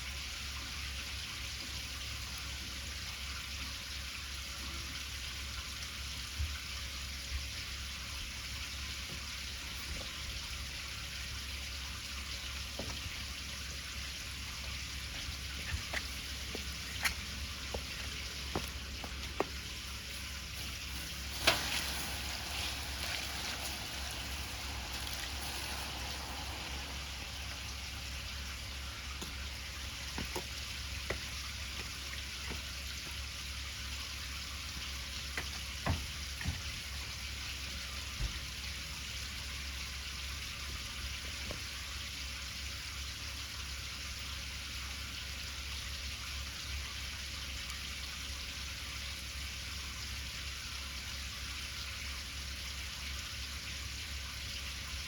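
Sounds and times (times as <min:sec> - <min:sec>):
bonfire hiss: 0:14.1 - 0:31.0
bonfire crackling and popping: 0:16.0 - 0:31.3.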